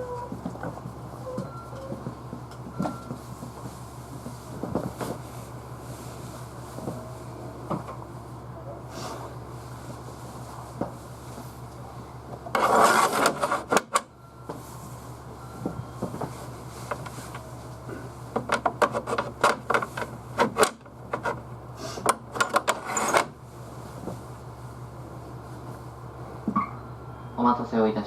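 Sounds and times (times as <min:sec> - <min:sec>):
clattering and rubbing noise: 0:00.0 - 0:08.0, 0:12.4 - 0:15.0, 0:15.6 - 0:24.4
train equipment hum: 0:00.0 - 0:28.0.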